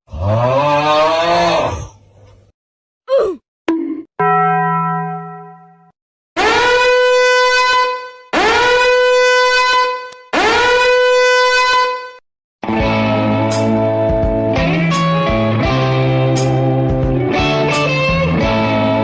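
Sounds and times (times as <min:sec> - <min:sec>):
horn-like blasts: 0:06.4 - 0:12.2.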